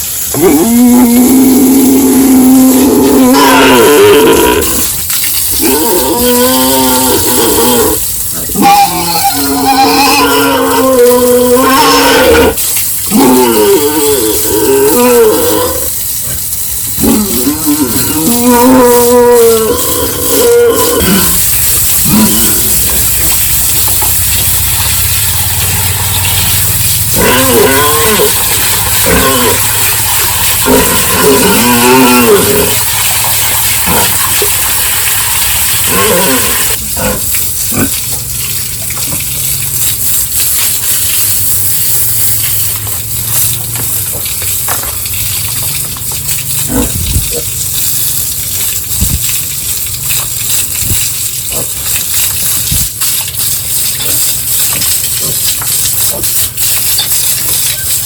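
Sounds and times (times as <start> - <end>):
pigs squealing: 0.3 - 23.5, 24.8 - 38.0, 46.5 - 47.6, 51.4 - 58.0.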